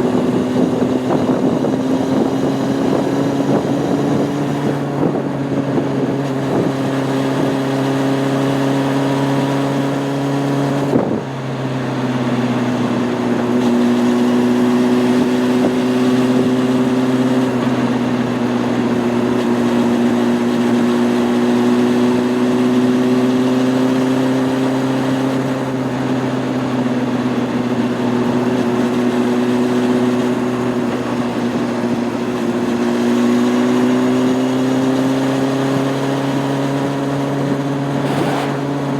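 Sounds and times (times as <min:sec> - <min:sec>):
motorcycle engine running: 0:00.0 - 0:38.9
wind rush: 0:37.6 - 0:38.9.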